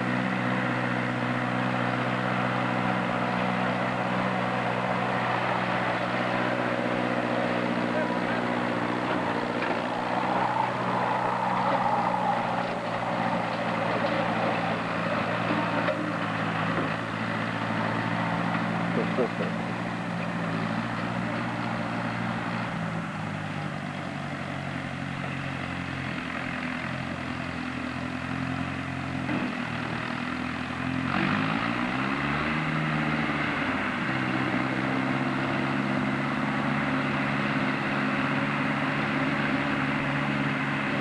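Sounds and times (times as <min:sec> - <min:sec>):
tractor engine running: 0:00.0 - 0:41.0.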